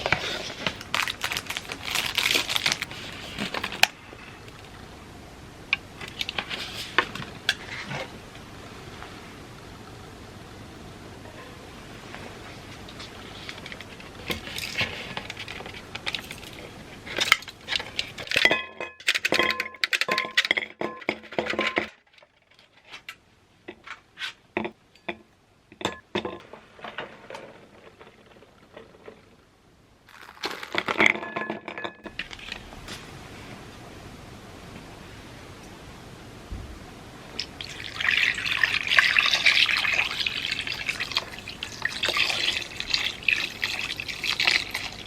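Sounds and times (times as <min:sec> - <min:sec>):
rustling: 0:00.0 - 0:04.8, 0:26.4 - 0:33.7
dishes and spoon clinking: 0:18.2 - 0:21.9, 0:24.6 - 0:26.5, 0:30.8 - 0:32.6.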